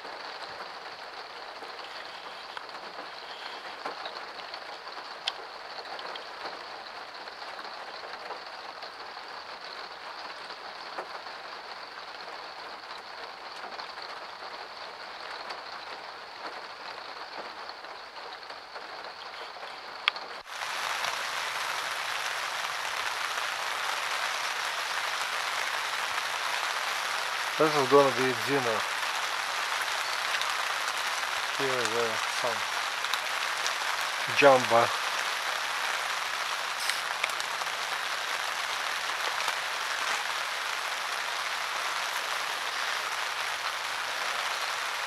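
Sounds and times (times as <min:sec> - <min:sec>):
steady rain falling: 0:00.0 - 0:45.0
loud hissing noise: 0:20.4 - 0:45.0.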